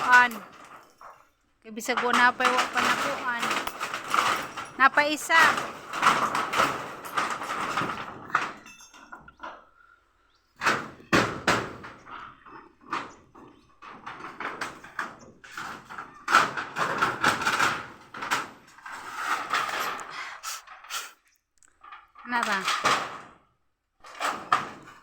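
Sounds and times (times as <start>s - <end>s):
knocks of wood and tools: 10.6s - 20.8s, 24.0s - 25.0s.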